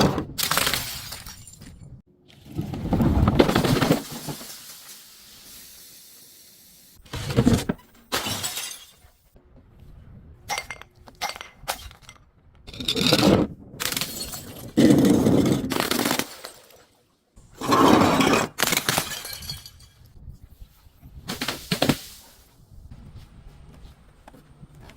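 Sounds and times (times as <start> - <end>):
glass bottles breaking: 0.4 - 2.0, 8.1 - 9.2, 13.8 - 14.8, 18.5 - 20.1.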